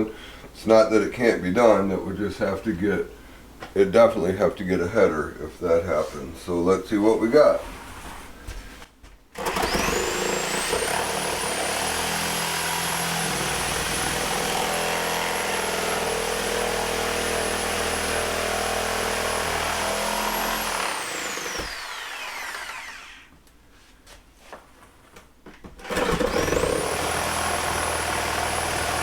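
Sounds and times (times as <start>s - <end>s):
reciprocating saw cutting: 9.4s - 23.3s, 25.8s - 29.0s.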